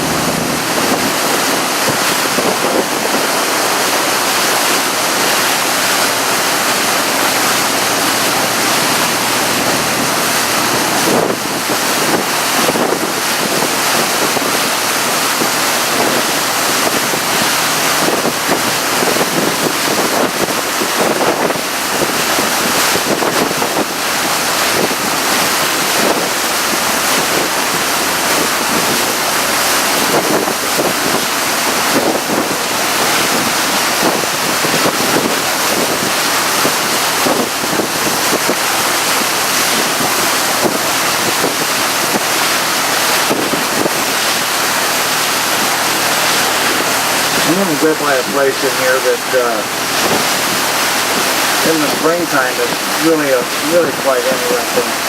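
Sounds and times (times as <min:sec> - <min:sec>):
low engine drone: 0:00.0 - 0:22.8, 0:44.0 - 0:55.0
water rushing past hull: 0:00.0 - 0:55.0
wind buffeting microphone: 0:00.0 - 0:55.0.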